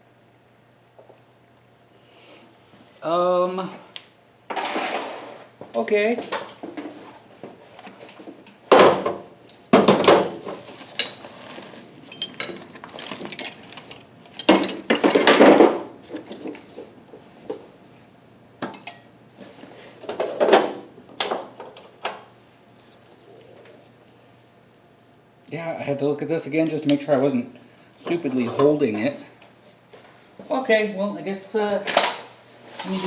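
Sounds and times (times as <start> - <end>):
metal tools clinking: 10.9 - 15.4, 18.6 - 19.2, 32.8 - 33.0.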